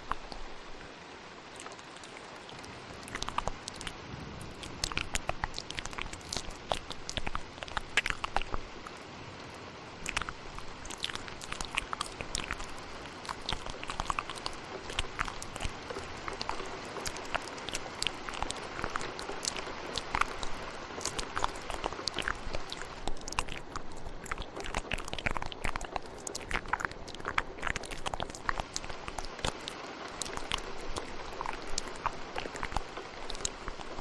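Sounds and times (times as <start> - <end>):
wet mouth clicks and smacks: 0.0 - 0.6, 1.6 - 9.0, 10.0 - 34.0
rain hiss: 0.0 - 34.0.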